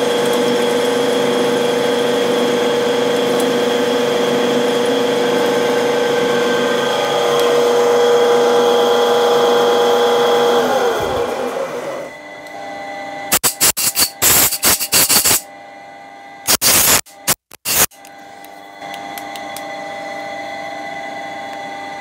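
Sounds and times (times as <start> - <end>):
milling machine spindle whine: 0.0 - 16.6.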